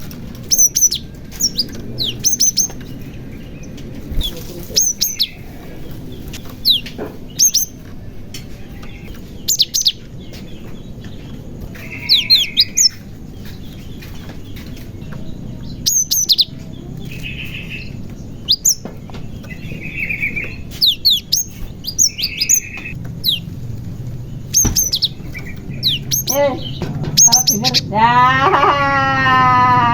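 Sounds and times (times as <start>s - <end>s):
buzzy bird churrs: 0.4s - 2.8s, 4.1s - 5.5s, 7.4s - 7.8s, 15.8s - 16.5s, 20.0s - 28.8s
bird whistling calls: 0.4s - 2.9s, 4.2s - 5.5s, 6.6s - 7.8s, 9.4s - 10.0s, 11.8s - 13.0s, 15.8s - 16.5s, 17.1s - 18.9s, 19.5s - 23.4s, 24.4s - 27.9s.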